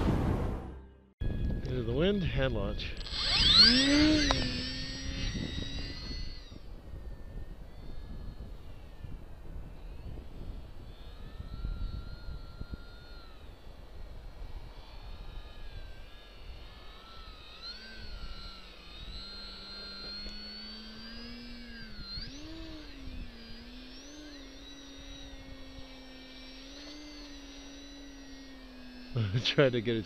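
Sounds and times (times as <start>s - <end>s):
wind rumble on microphone: 1.2s - 16.8s
model plane motor whining: 1.2s - 30.0s.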